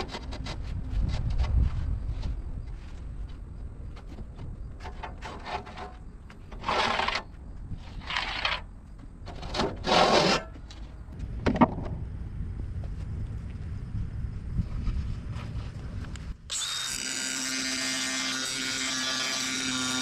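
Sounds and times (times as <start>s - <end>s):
scraping strokes: 4.8s - 8.7s, 9.3s - 10.6s.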